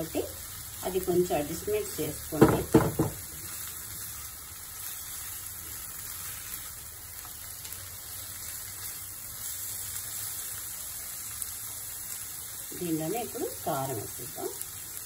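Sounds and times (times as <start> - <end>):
meat sizzling in oil: 0.0 - 15.0.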